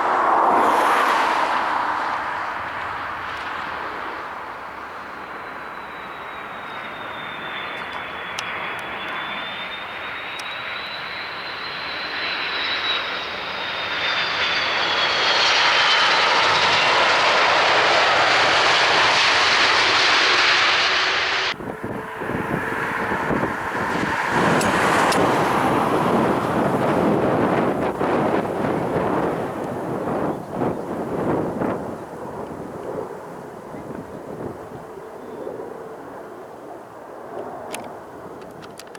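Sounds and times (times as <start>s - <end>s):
aircraft engine noise: 0.0s - 38.9s
airliner engines whining: 0.0s - 38.9s
wind buffeting microphone: 21.5s - 35.2s.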